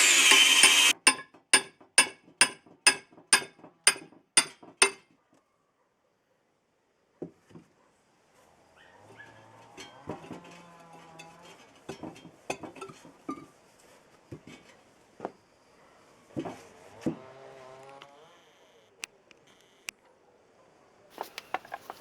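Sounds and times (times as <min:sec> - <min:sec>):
metal parts clinking and knocking: 0:21.2 - 0:22.0.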